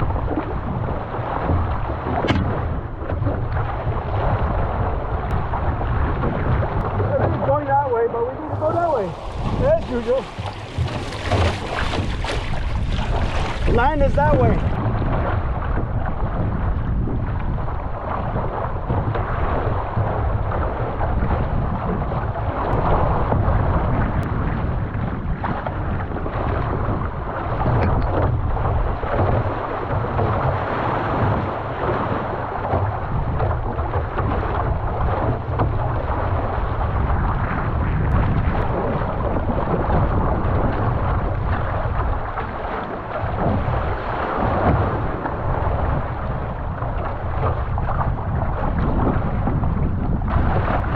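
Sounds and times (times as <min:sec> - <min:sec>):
rushing splashing water: 0:00.0 - 0:50.9
wind buffeting microphone: 0:00.0 - 0:50.9.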